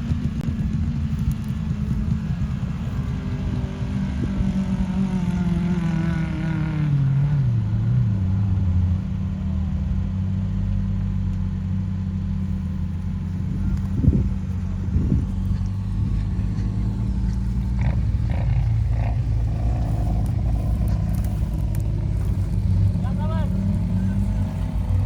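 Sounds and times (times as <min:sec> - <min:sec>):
off-road vehicle engine running: 0:00.0 - 0:25.0.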